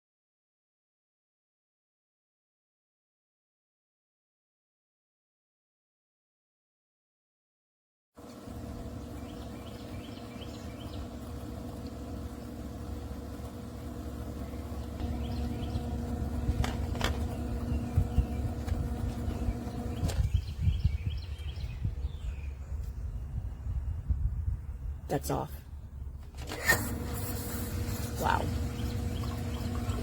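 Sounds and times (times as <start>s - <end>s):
pump motor humming: 8.2s - 22.2s, 25.8s - 30.0s
birds chirping faintly: 8.2s - 30.0s
low water rumble: 26.9s - 30.0s.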